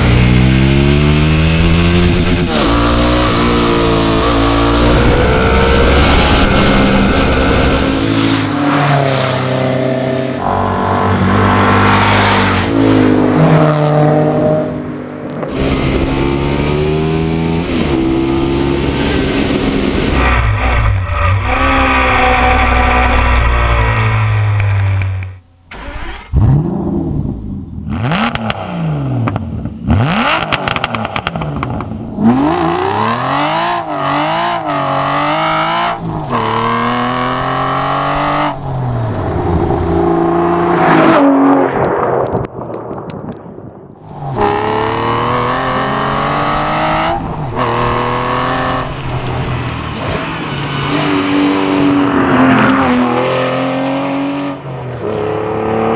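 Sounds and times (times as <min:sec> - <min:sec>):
piston engines revving hard: 0:00.0 - 0:14.4, 0:25.7 - 0:41.2, 0:44.0 - 0:49.7.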